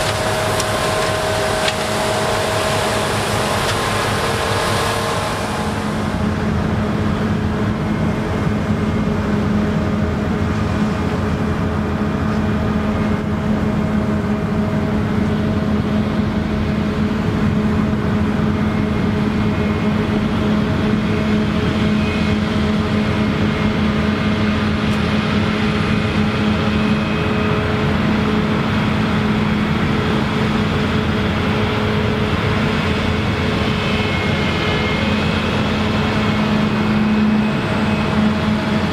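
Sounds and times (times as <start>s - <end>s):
combine harvester engine drone: 0.0s - 38.9s.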